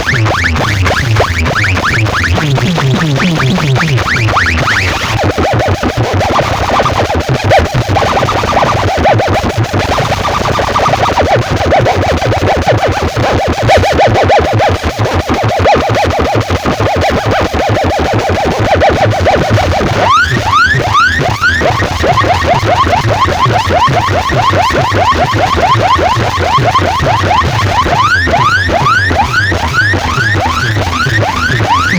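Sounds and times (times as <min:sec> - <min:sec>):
electronic warbling tone: 0:00.3 - 0:05.5, 0:06.1 - 0:14.5, 0:25.0 - 0:31.9
deep low throb: 0:00.5 - 0:05.2, 0:28.7 - 0:31.9.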